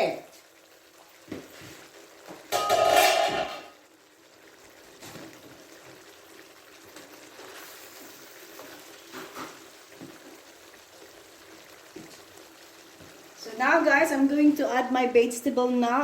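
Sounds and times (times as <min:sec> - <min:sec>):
chicken sizzling in a pan: 0:00.0 - 0:16.0
loud ringing clatter: 0:02.6 - 0:03.7.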